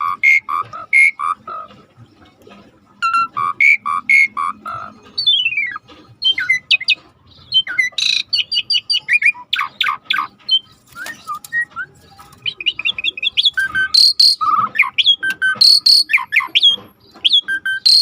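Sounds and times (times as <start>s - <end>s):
starling singing varied song: 3.0s - 18.0s.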